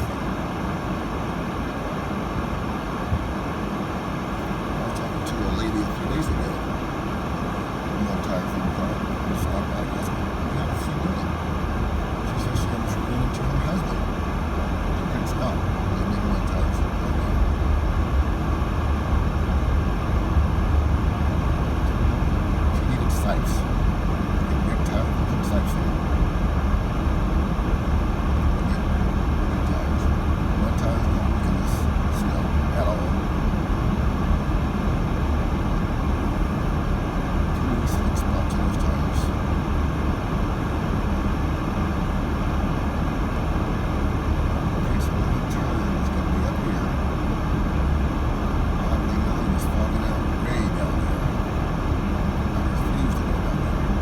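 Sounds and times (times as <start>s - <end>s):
road and tyre noise in car cabin: 0.0s - 54.0s.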